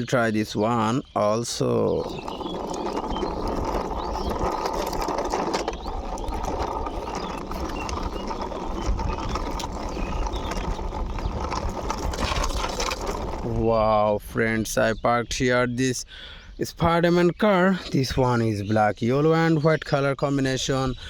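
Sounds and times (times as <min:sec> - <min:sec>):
toy car wheels rolling: 0:01.4 - 0:13.8.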